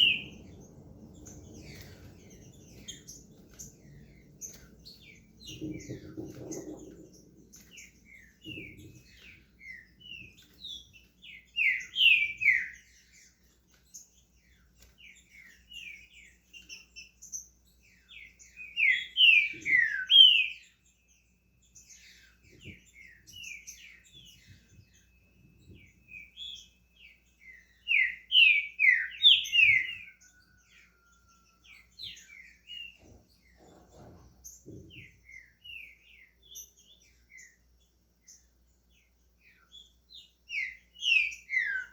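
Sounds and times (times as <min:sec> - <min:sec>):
bird singing whistled phrases: 0:00.0 - 0:00.4, 0:18.8 - 0:20.7, 0:27.6 - 0:31.2, 0:40.5 - 0:41.9
soft bird chirps: 0:00.0 - 0:41.9.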